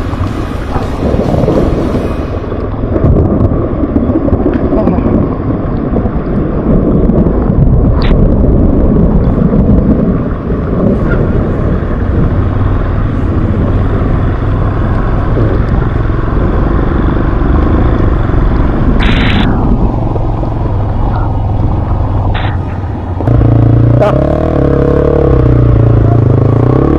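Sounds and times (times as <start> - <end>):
burst of sharp noise: 0.0 - 2.9
off-road motorbike engine rumble: 0.0 - 26.9.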